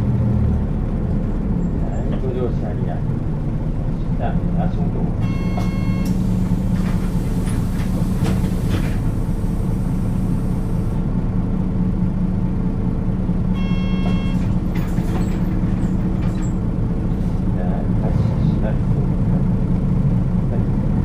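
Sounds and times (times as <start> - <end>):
bus diesel engine drone: 0.0 - 21.0
short electronic tone: 5.2 - 6.2, 13.6 - 14.4.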